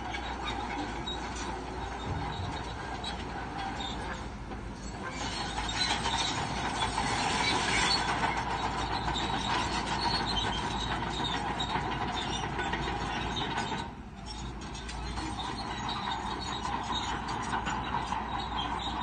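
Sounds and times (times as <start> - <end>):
bulldozer engine and tracks: 0.0 - 19.0.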